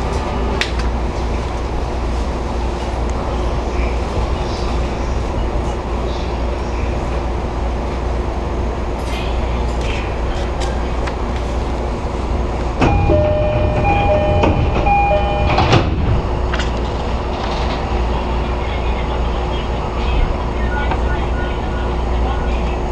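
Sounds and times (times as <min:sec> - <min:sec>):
train low rumble: 0:00.0 - 0:22.9
electronic tones: 0:12.8 - 0:15.8.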